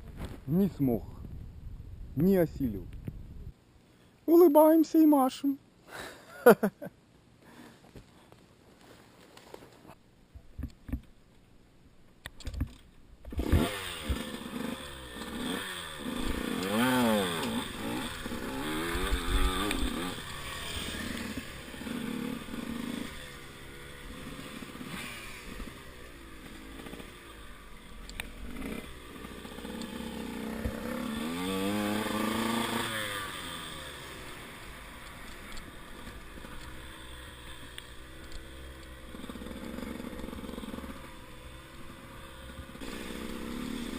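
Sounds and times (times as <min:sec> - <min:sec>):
motorcycle engine revving: 0:13.3 - 0:43.9.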